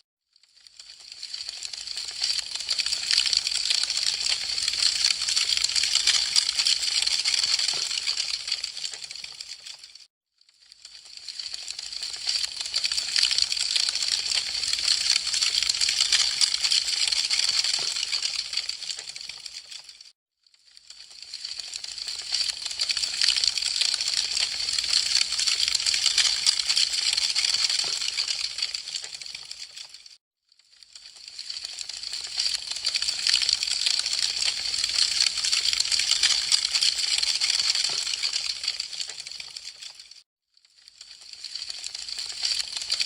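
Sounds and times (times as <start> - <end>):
wood fire crackling: 0.7 - 9.8, 17.6 - 19.4, 31.0 - 39.4.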